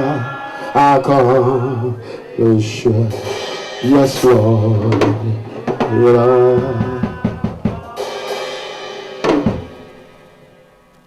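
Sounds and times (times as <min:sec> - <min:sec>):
live band playing gospel song: 0:02.8 - 0:08.5
cymbal crashes: 0:03.1 - 0:10.9
snare and bass drum hits: 0:03.2 - 0:08.0, 0:09.2 - 0:09.9.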